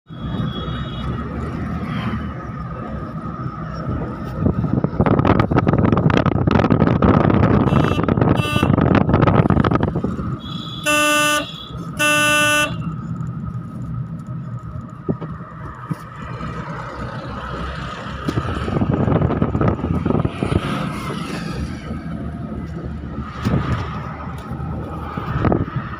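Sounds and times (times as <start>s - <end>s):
car engine driving: 0.1s - 25.9s
road rumble: 0.1s - 25.9s
vehicle horn honking: 7.6s - 8.9s, 10.4s - 13.0s.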